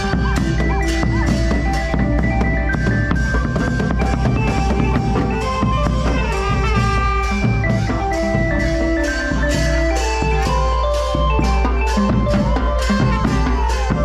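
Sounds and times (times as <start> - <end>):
drum kit beat: 0.0 - 14.0
brass band playing: 4.4 - 14.0.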